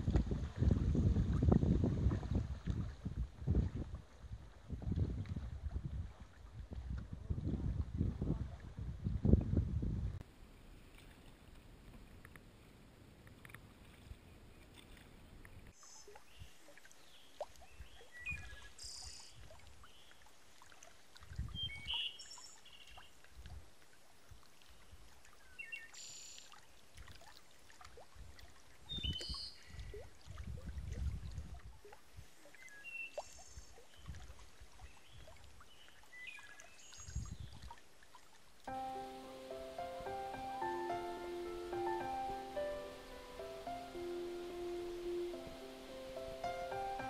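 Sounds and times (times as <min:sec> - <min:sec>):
faint steady hiss: 0:10.2 - 0:17.5, 0:38.6 - 0:47.0.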